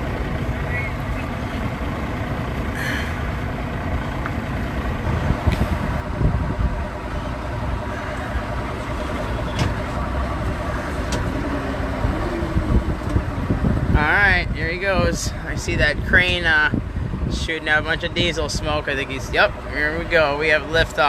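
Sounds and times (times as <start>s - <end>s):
diesel crane engine running: 0.0s - 21.0s.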